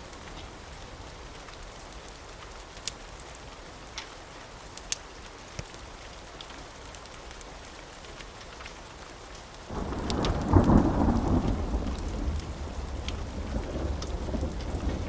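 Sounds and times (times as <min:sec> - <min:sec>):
steady rain: 0:00.0 - 0:15.0
thunder rumbling: 0:09.7 - 0:15.0.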